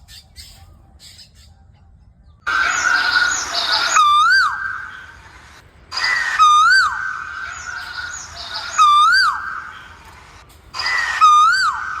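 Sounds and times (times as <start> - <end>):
bird calling: 2.5 - 12.0.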